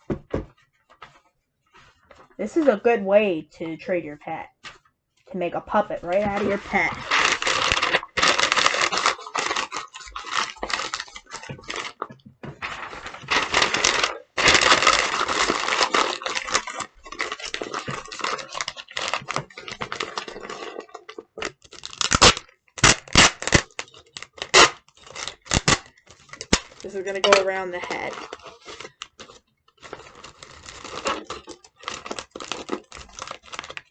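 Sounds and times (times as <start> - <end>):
paper crinkling: 0.5 - 3.0, 4.6 - 33.9
tape being pulled and torn: 21.8 - 26.9.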